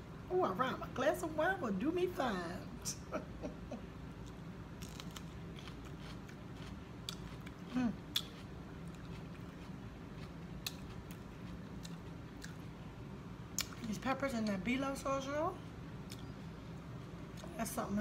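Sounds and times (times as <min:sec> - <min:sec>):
crisp chewing crunches: 0:04.2 - 0:12.8.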